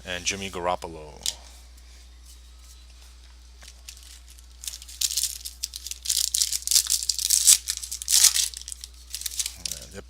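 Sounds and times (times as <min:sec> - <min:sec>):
wrapper crinkling and tearing: 0:03.6 - 0:09.9.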